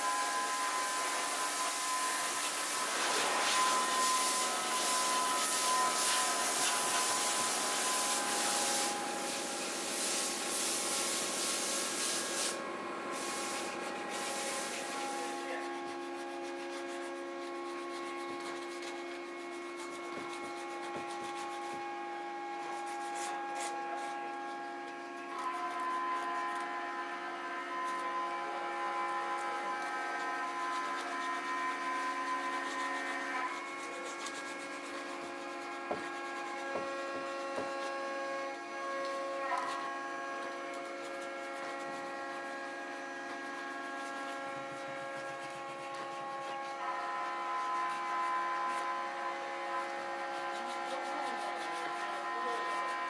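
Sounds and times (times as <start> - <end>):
sandpaper sanding wood: 0.0 - 21.9, 22.6 - 24.2, 30.2 - 38.3, 39.7 - 46.8, 49.8 - 53.0.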